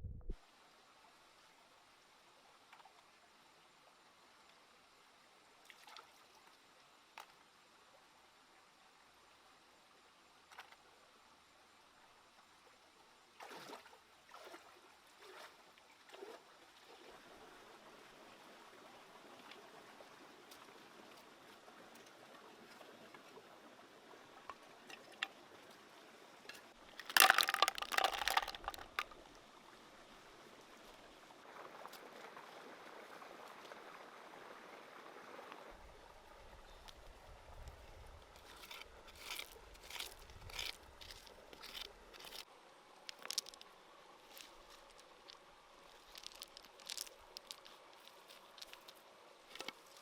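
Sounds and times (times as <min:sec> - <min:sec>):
water sloshing and pouring: 0:26.9 - 0:29.3
water splashing: 0:26.9 - 0:29.3.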